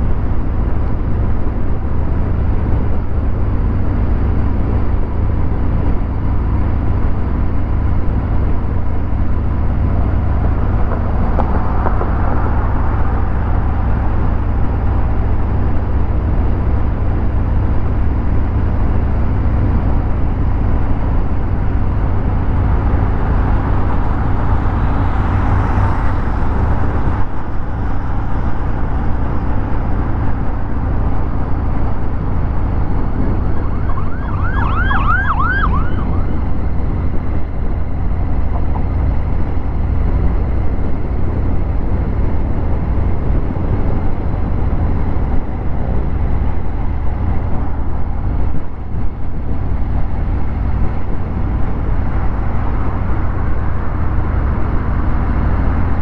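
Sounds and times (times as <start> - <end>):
warbling siren: 33.0 - 36.8.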